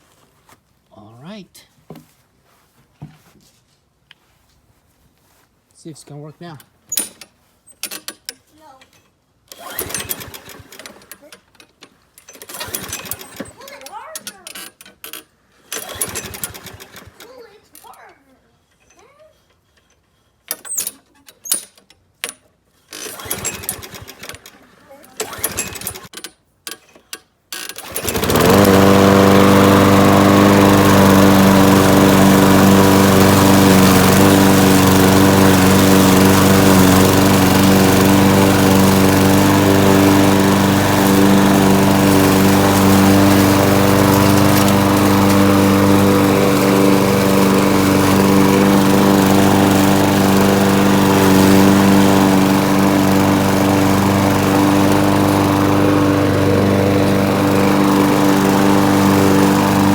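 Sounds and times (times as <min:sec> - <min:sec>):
lawn mower engine running: 0:09.6 - 0:11.2, 0:12.4 - 0:14.0, 0:15.8 - 0:17.3, 0:23.1 - 0:26.1, 0:27.8 - 0:59.9.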